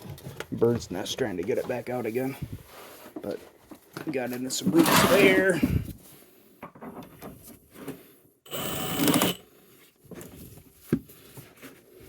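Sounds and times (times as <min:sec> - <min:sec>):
hammer drill spinning cable: 0:08.5 - 0:09.5.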